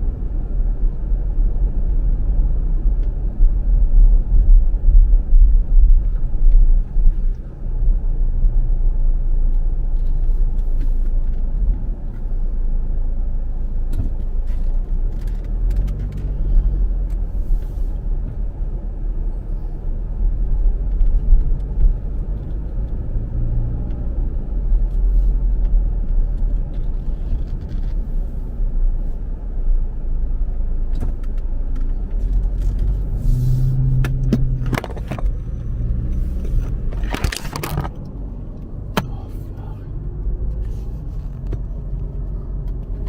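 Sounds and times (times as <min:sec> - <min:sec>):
car engine and road noise: 0:00.0 - 0:43.0.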